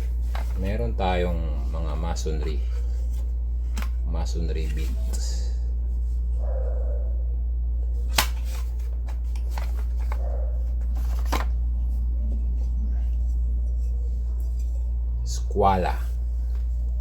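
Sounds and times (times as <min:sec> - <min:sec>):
low hum: 0:00.0 - 0:17.0
rustling of tool bag: 0:08.1 - 0:11.6.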